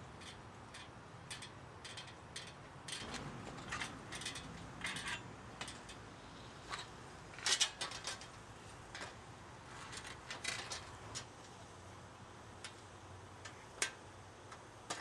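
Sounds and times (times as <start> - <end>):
tools clinking on metal parts: 0.2 - 6.0.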